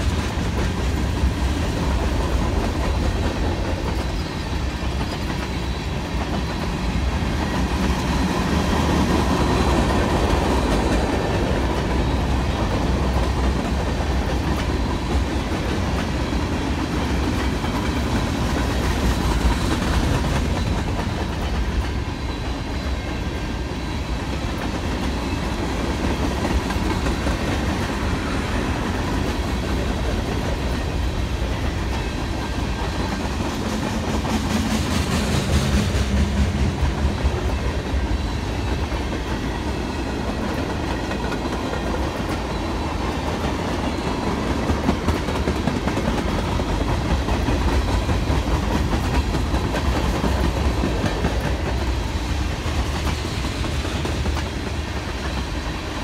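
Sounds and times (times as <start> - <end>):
freight train rumbling past: 0.0 - 56.0
wheels clacking over rail joints: 24.3 - 55.8.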